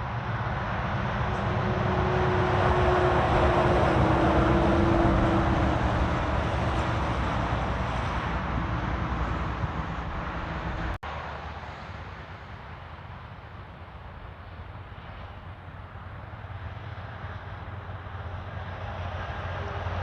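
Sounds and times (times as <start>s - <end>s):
vehicle approaching: 0.0s - 11.9s
truck engines running: 0.0s - 20.0s
tyre and road noise: 0.0s - 20.0s.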